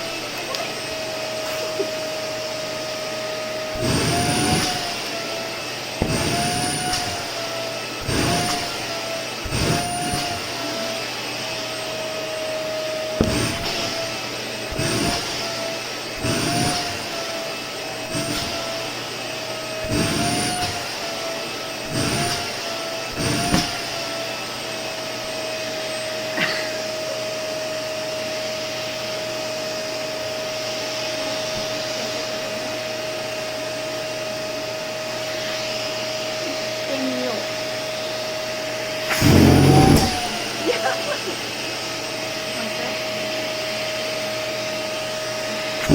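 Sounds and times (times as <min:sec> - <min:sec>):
vacuum cleaner motor whine: 0:00.0 - 0:45.9
nozzle suction rush: 0:00.8 - 0:26.0, 0:38.9 - 0:40.6.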